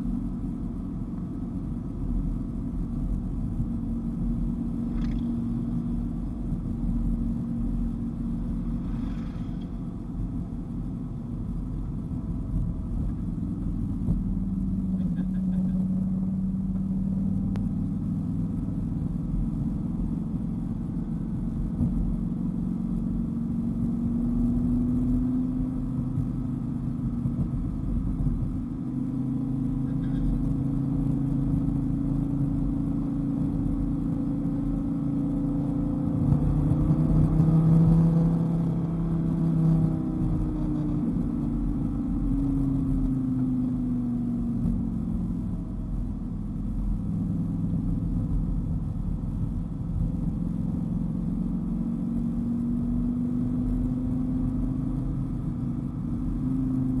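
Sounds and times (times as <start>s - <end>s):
car engine running: 0.0s - 57.0s
road rumble: 0.0s - 57.0s.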